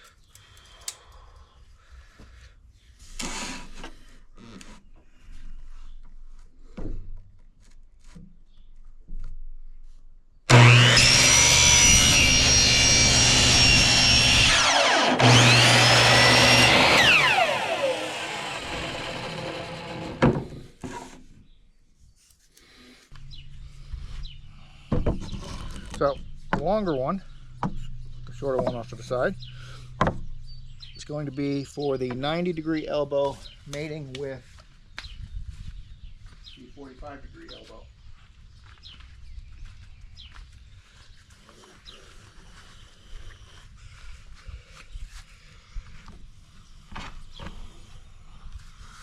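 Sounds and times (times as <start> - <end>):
miter saw whining: 10.5 - 20.7.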